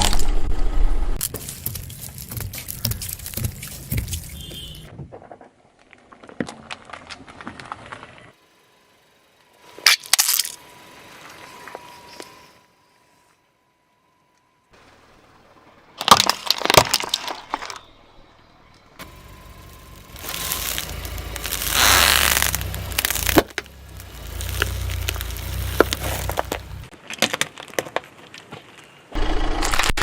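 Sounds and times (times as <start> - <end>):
car creeping rumble: 1.0 - 4.9, 6.2 - 13.3, 16.9 - 27.0
objects cracking under tyre: 1.2 - 8.4, 9.8 - 10.6, 16.0 - 18.1, 19.0 - 30.0.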